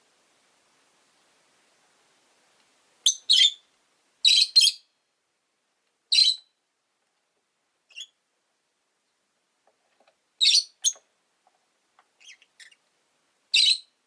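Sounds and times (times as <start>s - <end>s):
lovebirds chirping: 3.0s - 5.0s, 6.1s - 6.6s, 7.9s - 8.2s, 10.4s - 11.1s, 12.2s - 12.9s, 13.5s - 14.0s.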